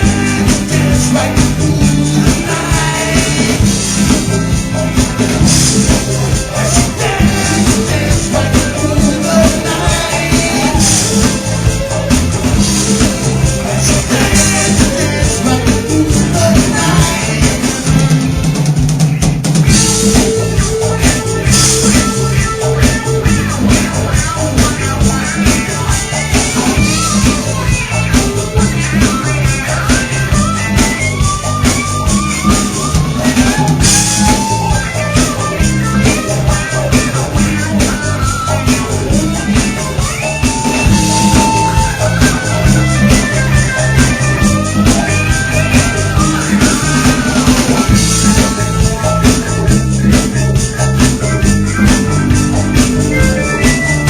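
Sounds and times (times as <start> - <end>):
bass guitar: 0.0 - 54.0
drum kit: 0.0 - 54.0
percussion: 0.0 - 54.0
lead guitar solo: 19.7 - 54.0.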